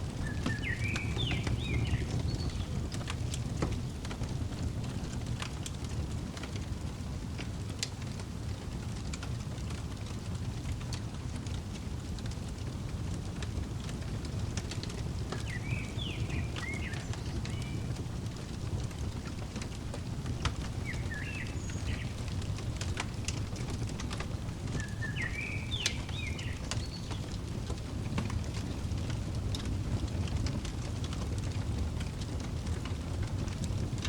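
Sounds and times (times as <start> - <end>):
fireplace crackling: 0.0 - 34.0
songbird chirping: 0.1 - 3.1, 14.6 - 27.4.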